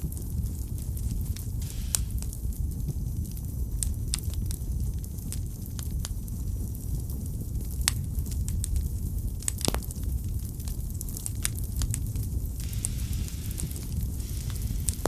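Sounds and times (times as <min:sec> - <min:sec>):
low rumble of flames: 0:00.0 - 0:15.0
wood fire crackling and popping: 0:00.0 - 0:15.0
soft hiss: 0:01.0 - 0:03.2, 0:11.4 - 0:15.0.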